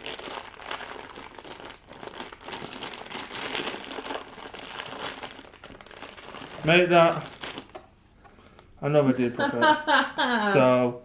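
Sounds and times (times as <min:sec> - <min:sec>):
packaging crinkling and tearing: 0:00.0 - 0:07.9.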